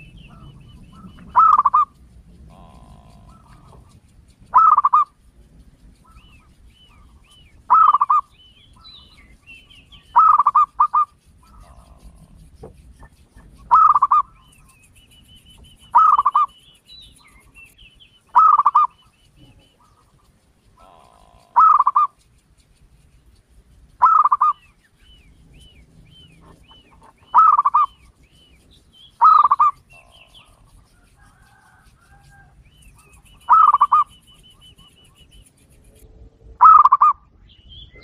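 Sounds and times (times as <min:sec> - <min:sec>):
large bird calling loudly: 0:00.0 - 0:05.2, 0:05.9 - 0:22.3, 0:23.9 - 0:35.6, 0:36.6 - 0:38.0
faint bird chirps: 0:00.0 - 0:36.0, 0:36.6 - 0:38.0.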